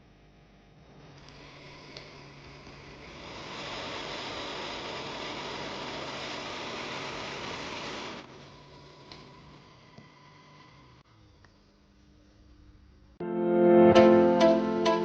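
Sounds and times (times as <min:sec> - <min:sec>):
rushing hiss of air: 0:01.4 - 0:11.0.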